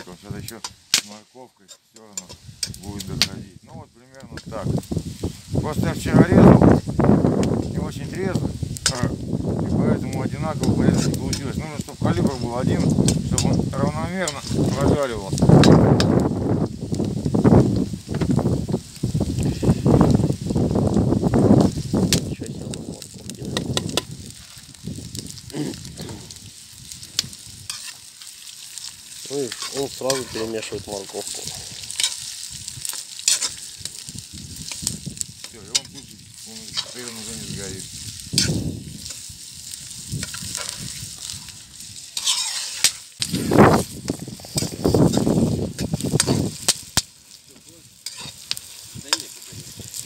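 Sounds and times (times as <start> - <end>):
campfire crackling and snapping: 0.0 - 50.0
vegetables sizzling in hot oil: 0.0 - 50.0
wind buffeting microphone: 2.3 - 27.7, 29.8 - 42.1, 43.2 - 47.0, 47.6 - 50.0
utensil scraping against pot: 27.6 - 28.3, 29.3 - 30.6, 31.2 - 33.7, 42.1 - 46.7, 48.0 - 49.3.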